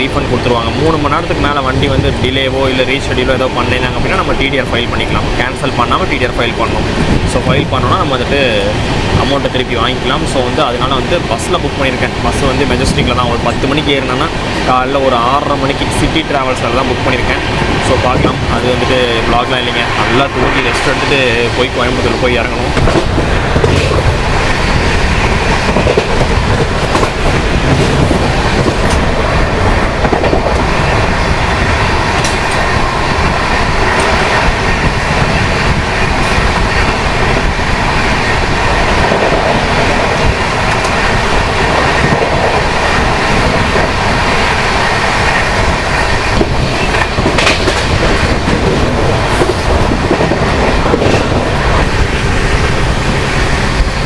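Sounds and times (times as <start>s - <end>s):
train rumbling at speed: 0.0s - 54.0s
wheels clicking over rail joints: 12.2s - 54.0s.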